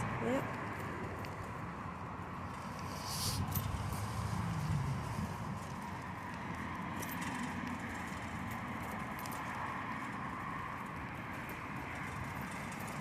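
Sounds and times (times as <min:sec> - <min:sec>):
bicycle tyre and wind hum: 0:00.0 - 0:13.0.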